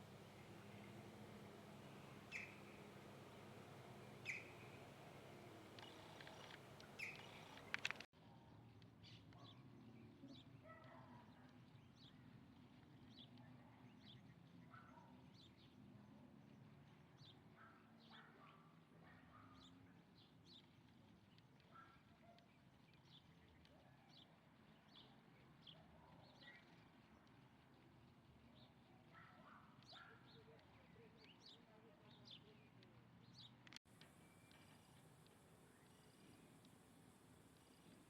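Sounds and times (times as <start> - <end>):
bird chirps: 0.0 - 8.1.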